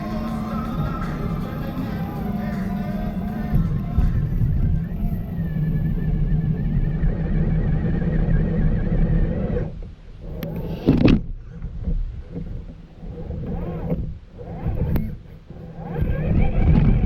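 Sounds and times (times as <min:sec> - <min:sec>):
electric motor whining: 0:00.0 - 0:10.9.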